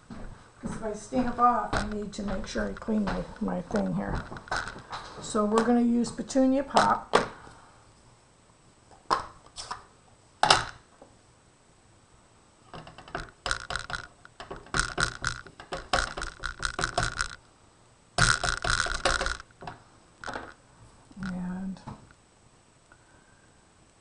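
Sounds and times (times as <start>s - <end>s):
sharp plastic clicks: 12.8s - 17.4s, 18.2s - 20.6s.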